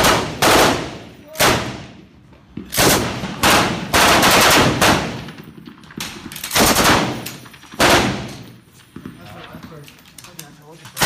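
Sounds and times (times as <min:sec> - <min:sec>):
machine gun bursts: 0:06.2 - 0:08.2.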